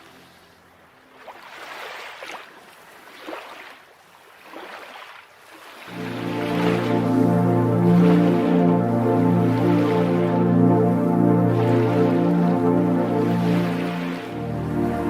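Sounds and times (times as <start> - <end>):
water washing in swells: 1.1 - 15.0
music: 5.9 - 15.0.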